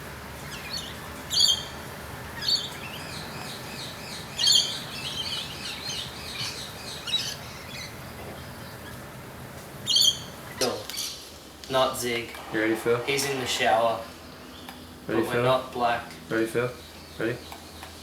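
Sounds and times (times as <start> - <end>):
soft bird twittering: 0.4 - 1.8, 2.4 - 9.0, 9.8 - 11.4, 12.0 - 15.2
loud high bird calls: 0.4 - 9.2, 9.8 - 15.5.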